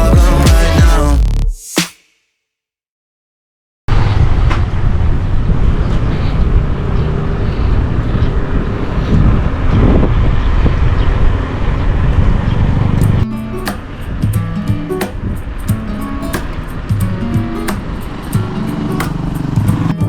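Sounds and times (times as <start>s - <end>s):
guitar music: 0.0s - 1.2s, 13.0s - 20.0s
road rumble: 3.9s - 20.0s
wind buffeting microphone: 4.2s - 13.2s.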